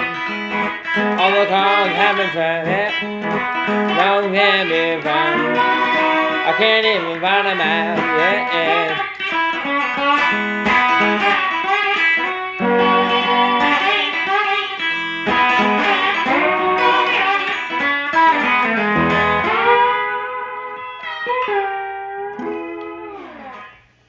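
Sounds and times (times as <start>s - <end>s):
plucked guitar notes: 0.0s - 23.9s.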